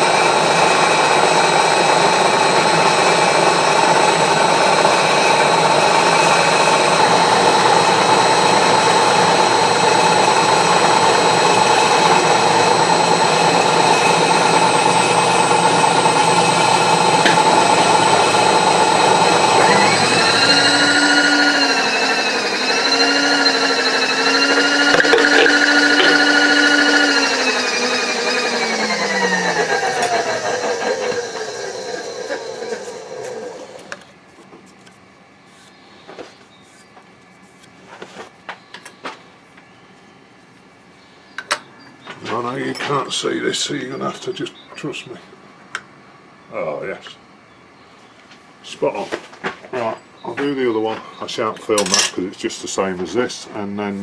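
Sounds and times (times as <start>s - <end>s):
machine tool cutting metal: 0.0s - 33.8s
motor whine winding down: 0.0s - 34.0s.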